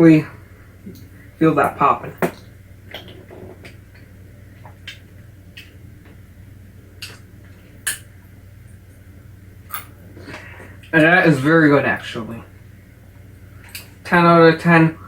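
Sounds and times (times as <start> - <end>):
low steady hum: 0.0 - 15.0
mouth noises eating: 0.2 - 11.5.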